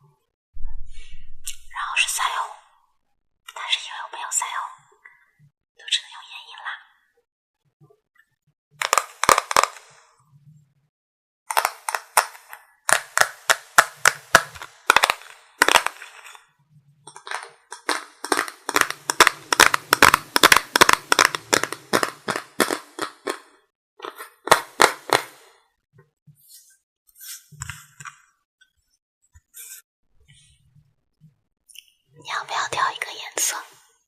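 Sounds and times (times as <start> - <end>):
makeup items clicking and tapping: 8.8 - 10.0, 11.5 - 16.4, 17.1 - 25.4.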